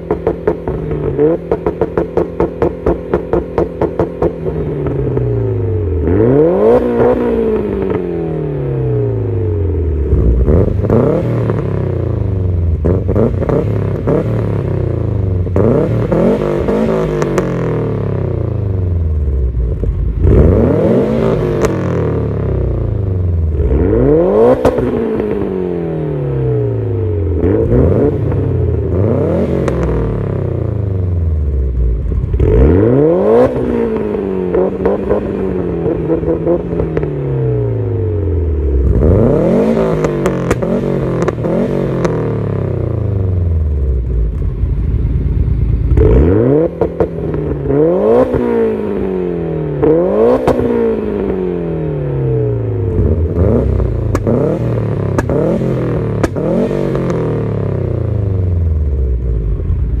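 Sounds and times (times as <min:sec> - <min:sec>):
car engine revving: 0:00.0 - 1:00.0
exhaust crackles: 0:52.8 - 1:00.0.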